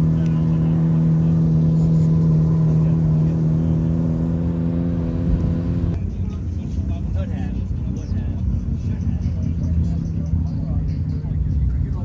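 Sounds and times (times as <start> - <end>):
car engine droning at high rev: 0.0 - 6.0.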